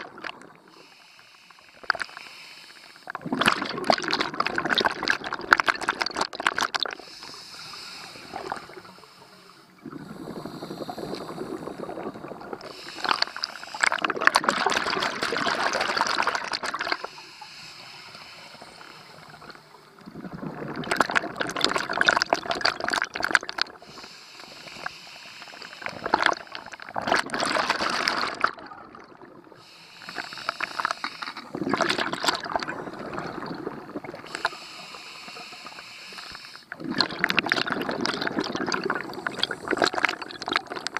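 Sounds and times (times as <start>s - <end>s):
diver breathing through regulator: 0.7s - 3.2s, 7.0s - 14.2s, 17.0s - 20.0s, 23.8s - 26.9s, 29.6s - 31.6s, 34.2s - 36.8s, 38.9s - 40.6s
bubbling exhaled air: 1.7s - 40.9s.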